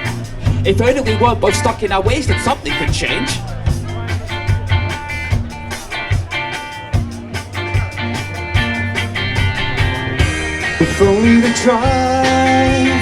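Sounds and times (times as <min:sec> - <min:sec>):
bass line: 0:00.0 - 0:13.0
drum beat: 0:00.0 - 0:13.0
guitar chords: 0:00.0 - 0:13.0.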